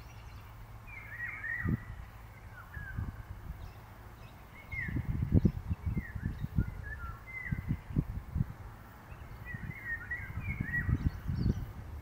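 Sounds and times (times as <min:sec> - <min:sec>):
songbird whistling: 0:00.0 - 0:03.1, 0:04.6 - 0:08.0, 0:09.1 - 0:11.7
wind rumbling on microphone: 0:00.0 - 0:12.0.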